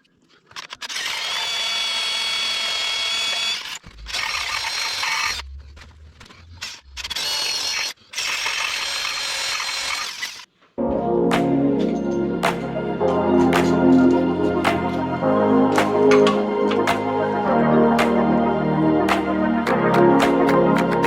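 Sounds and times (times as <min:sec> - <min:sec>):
electric drill boring into metal: 0:00.6 - 0:05.4, 0:07.1 - 0:10.5.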